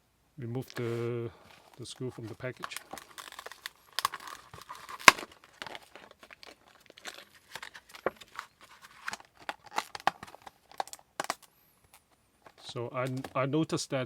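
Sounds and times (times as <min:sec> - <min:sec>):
plastic packaging crinkling and tearing: 0:01.6 - 0:11.5.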